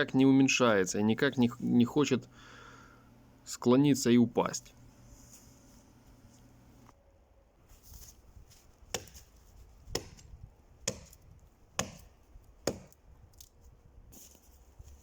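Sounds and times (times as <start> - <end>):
axe chopping tree trunk: 8.9 - 9.3, 9.9 - 13.0.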